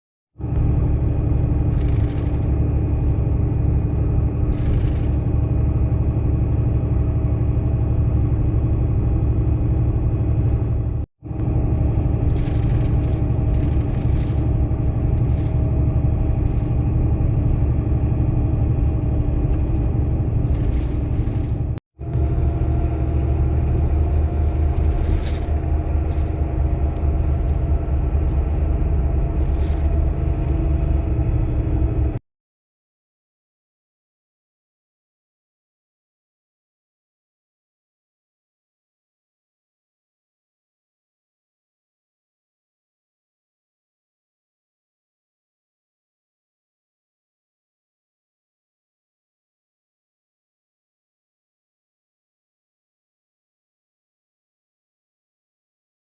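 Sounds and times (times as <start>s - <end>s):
moving vehicle rumble: 0.4s - 32.2s
brief rattles: 1.2s - 5.4s, 11.9s - 17.9s, 18.8s - 21.8s, 24.2s - 26.5s, 28.4s - 30.6s.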